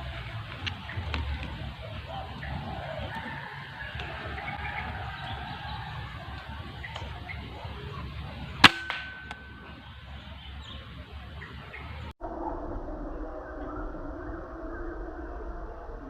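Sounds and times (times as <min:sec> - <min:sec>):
outdoor background noise: 0:00.0 - 0:16.0
air rifle shot: 0:08.6 - 0:09.8.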